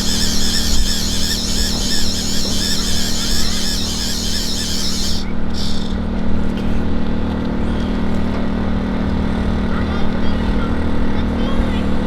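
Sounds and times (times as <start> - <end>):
hand-cranked fuel pump squealing: 0.0 - 6.0
steady low hum: 0.0 - 6.5.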